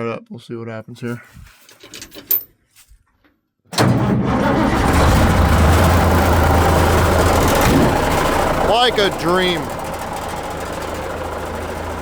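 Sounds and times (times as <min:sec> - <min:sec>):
diesel truck engine starting: 0:03.7 - 0:12.0
diesel engine idling: 0:03.8 - 0:12.0.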